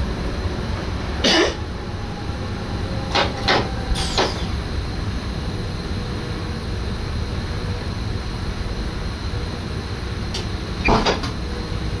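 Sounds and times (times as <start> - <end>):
train running low rumble: 0.0 - 12.0.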